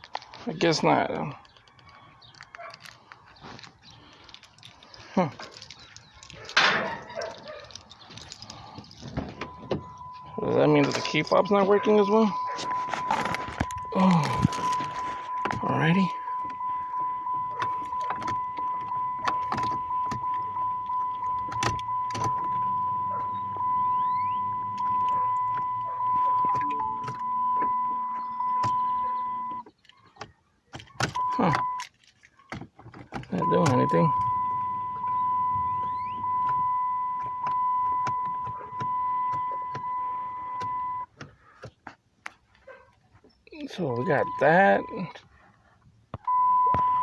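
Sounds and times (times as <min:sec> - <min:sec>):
car electrics clicking: 0:01.4 - 0:32.1, 0:33.0 - 0:41.7
steady high tone: 0:09.4 - 0:29.6, 0:44.0 - 0:45.0.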